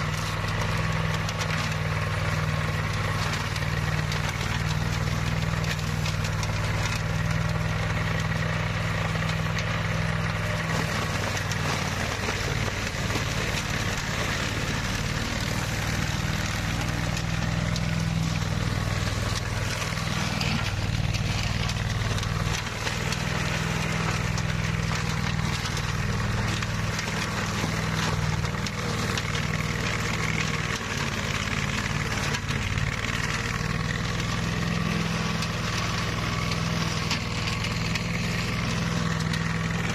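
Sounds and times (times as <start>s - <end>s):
mower engine drone: 0.0s - 39.9s.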